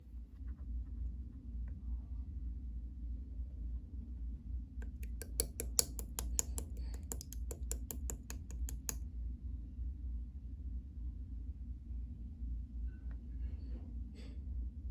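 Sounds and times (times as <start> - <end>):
slime clicking and popping: 4.8 - 9.0.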